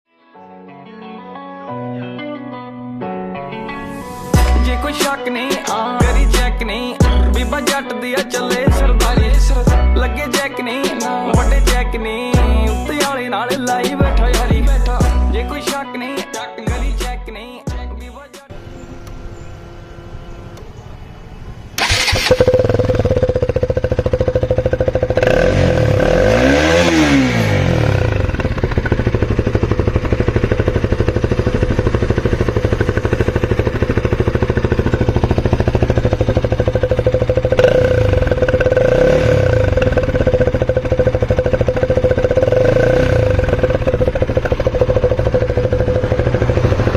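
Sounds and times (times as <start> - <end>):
motorcycle engine starting and idling: 18.6 - 46.9.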